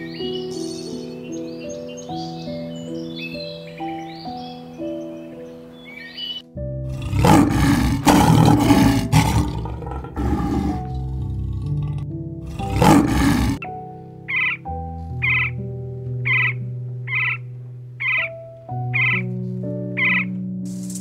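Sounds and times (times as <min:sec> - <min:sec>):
soft piano music: 0:00.0 - 0:21.0
lion roaring and grunting: 0:06.8 - 0:13.6.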